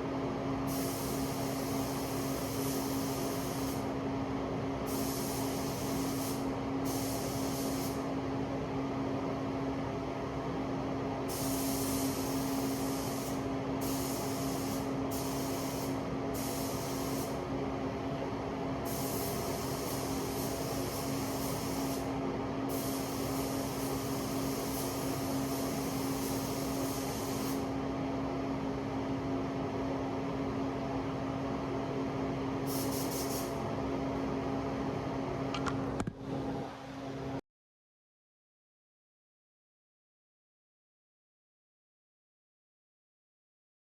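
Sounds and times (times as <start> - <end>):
steady mechanical hum: 0.0 - 37.4
spray gun hissing: 0.7 - 3.9, 4.9 - 8.1, 11.3 - 17.4, 18.8 - 22.1, 22.7 - 27.7, 32.7 - 33.6.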